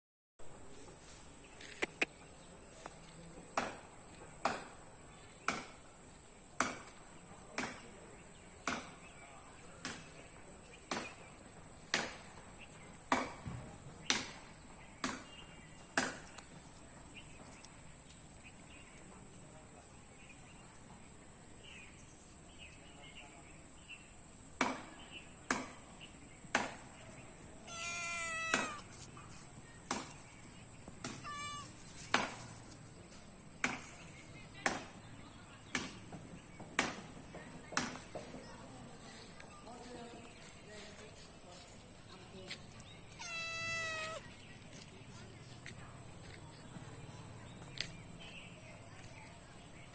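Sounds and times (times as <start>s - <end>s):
sharp clicks: 1.6s - 2.1s
cat meowing: 27.6s - 29.1s, 31.1s - 32.0s, 43.1s - 44.4s.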